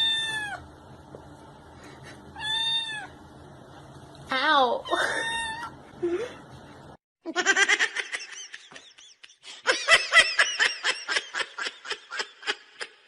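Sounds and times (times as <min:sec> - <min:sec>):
laughter in rapid bursts: 0:07.3 - 0:13.0.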